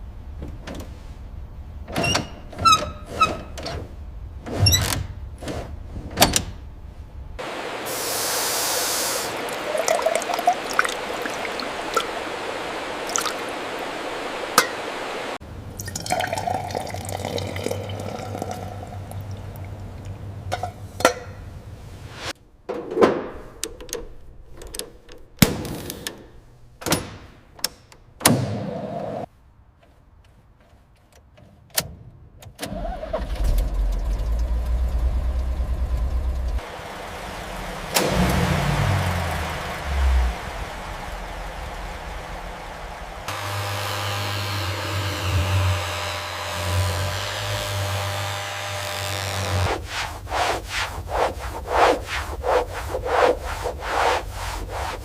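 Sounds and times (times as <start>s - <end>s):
rushing liquid with hiss: 7.4s - 15.4s.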